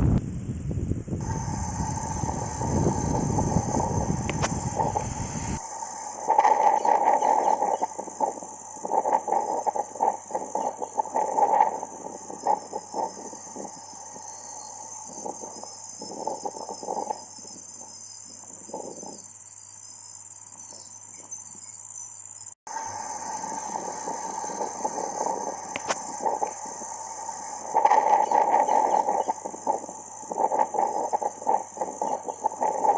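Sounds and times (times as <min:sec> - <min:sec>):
gusty low noise: 0:00.0 - 0:05.6
crickets chirring: 0:00.0 - 0:32.9.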